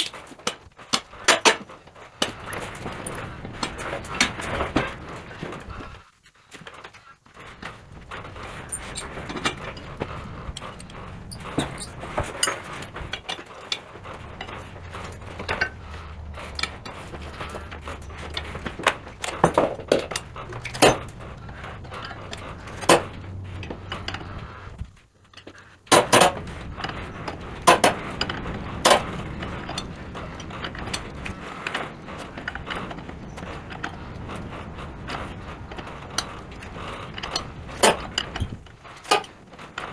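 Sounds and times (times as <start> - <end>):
low steady background hum: 7.4 - 39.9.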